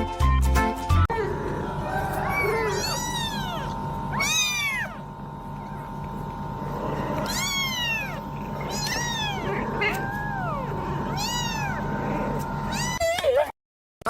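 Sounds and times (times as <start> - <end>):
cat meowing: 2.1 - 5.9, 7.2 - 11.9, 12.7 - 13.1.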